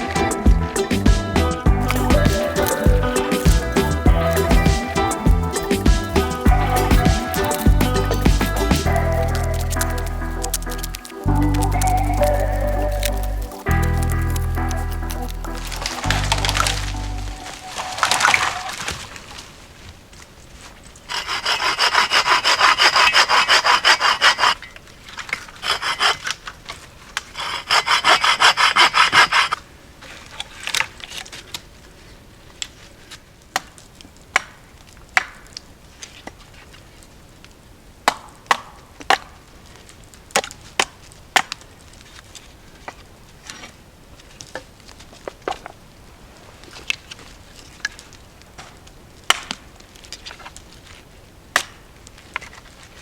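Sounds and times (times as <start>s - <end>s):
hand saw cutting wood: 21.1s - 24.6s, 25.3s - 26.4s, 27.2s - 29.6s.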